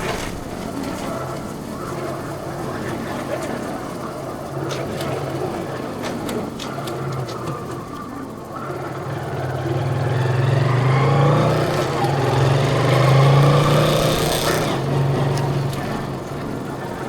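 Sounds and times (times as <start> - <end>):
vehicle engine humming: 6.8 - 17.0.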